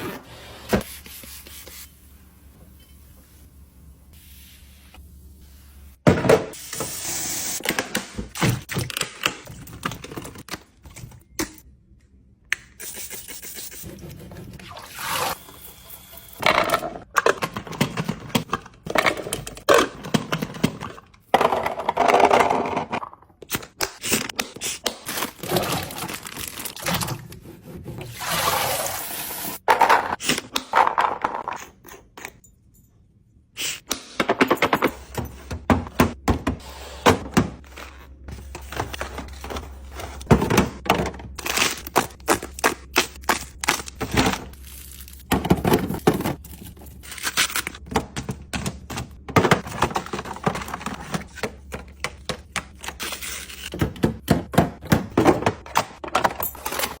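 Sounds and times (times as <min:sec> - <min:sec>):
kitchen items clicking and knocking: 0:16.4 - 0:27.4, 0:29.6 - 0:32.5, 0:34.0 - 0:44.6, 0:45.2 - 0:57.0.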